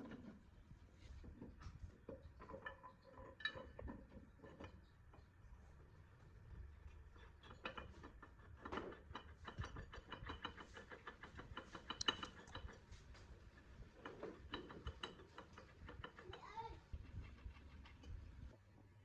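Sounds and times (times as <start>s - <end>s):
hand tools clicking on metal: 7.4s - 18.2s.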